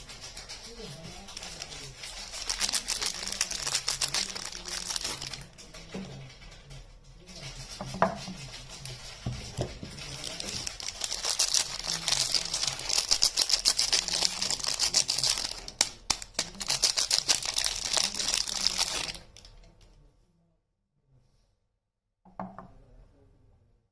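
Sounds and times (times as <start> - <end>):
soap wrapping crinkling and tearing: 1.4 - 5.5, 9.9 - 19.5.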